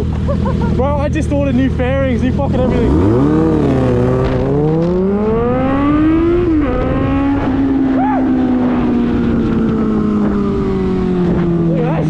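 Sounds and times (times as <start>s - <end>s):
motorcycle engine accelerating: 0.0s - 12.0s
wind rush: 3.8s - 12.0s.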